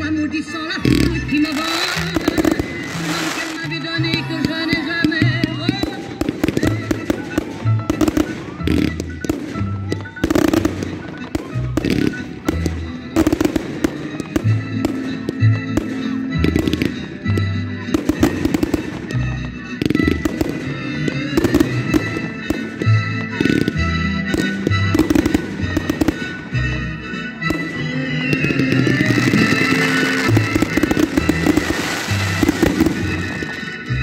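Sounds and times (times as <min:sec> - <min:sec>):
fireworks crackle: 0:00.8 - 0:22.8, 0:27.4 - 0:34.0
fireworks bursting: 0:00.8 - 0:34.0.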